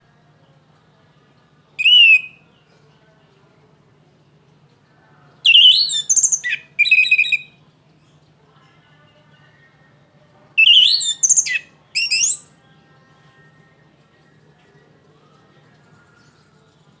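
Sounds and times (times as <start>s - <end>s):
thrush singing: 1.8s - 2.4s, 5.4s - 7.5s, 10.6s - 14.5s.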